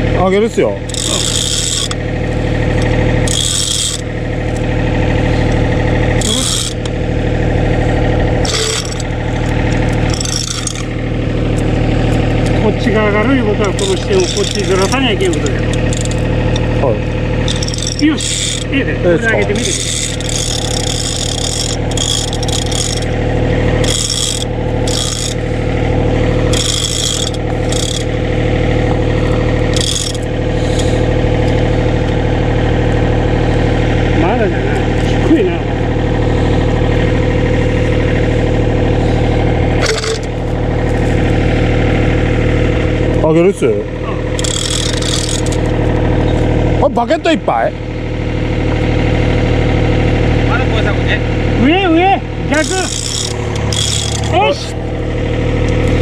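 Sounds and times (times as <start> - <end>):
excavator diesel engine running: 0.0 - 56.0
hydraulic hissing bursts: 30.5 - 31.1.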